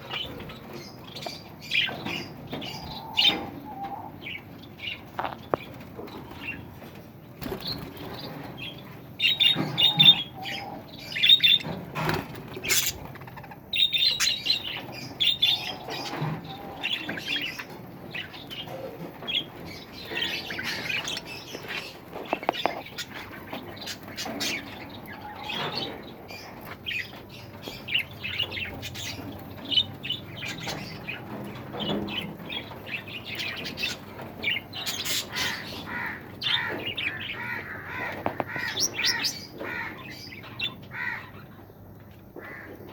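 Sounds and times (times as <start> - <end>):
birds chirping and squawking: 0.0 - 42.9.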